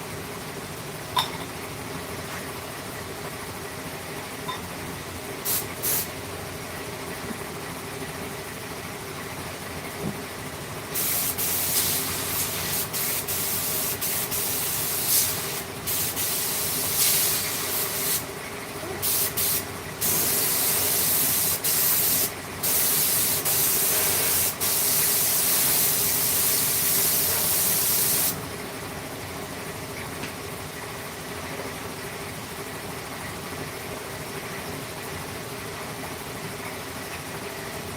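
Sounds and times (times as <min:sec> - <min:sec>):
compressed air hissing: 0:05.4 - 0:06.1, 0:10.9 - 0:18.3, 0:19.0 - 0:28.4.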